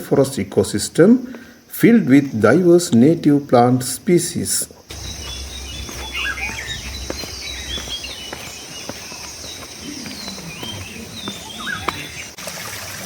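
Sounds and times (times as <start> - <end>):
insects droning: 0.0 - 13.0
birds whistling: 4.8 - 12.4.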